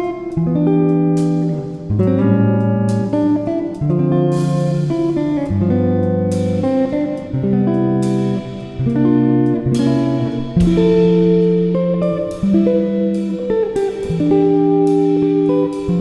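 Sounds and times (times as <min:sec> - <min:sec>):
guitar playing chords: 0:00.0 - 0:16.0.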